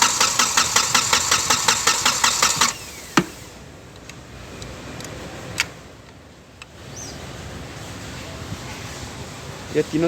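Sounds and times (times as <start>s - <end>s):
diesel engine cranking: 0.0s - 3.7s.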